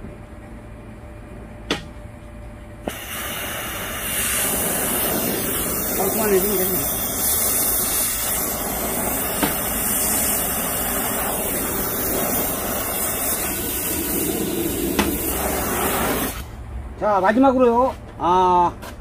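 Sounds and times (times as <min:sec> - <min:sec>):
gas torch flame hissing: 0:02.8 - 0:16.6.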